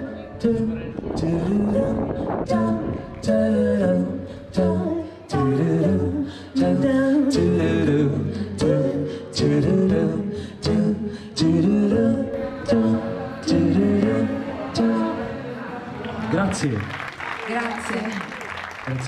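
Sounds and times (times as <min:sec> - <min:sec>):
vocal group singing in harmony: 0:00.0 - 0:16.2.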